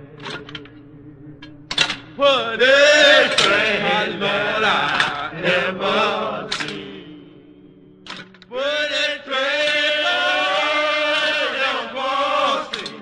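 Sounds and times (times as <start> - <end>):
steady sustained drone: 0.0 - 10.7
voices chanting: 0.0 - 13.0
sharp clicks: 6.5 - 6.9.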